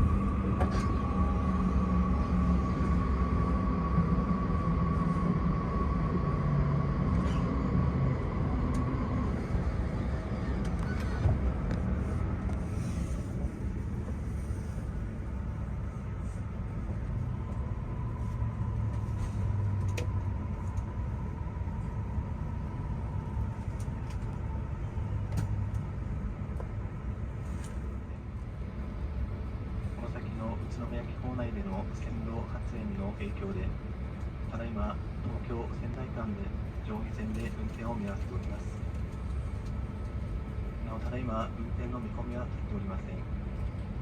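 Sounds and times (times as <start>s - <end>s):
train cabin rumble: 0.0s - 44.0s.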